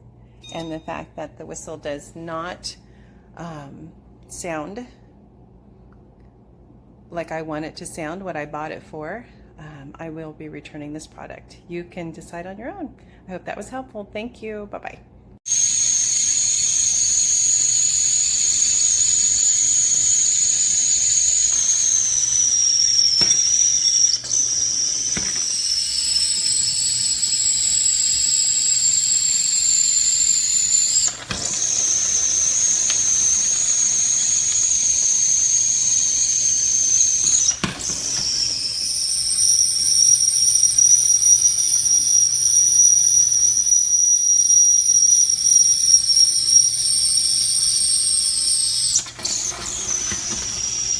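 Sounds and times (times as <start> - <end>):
tea kettle whistling: 0.4 - 1.1, 15.5 - 50.9.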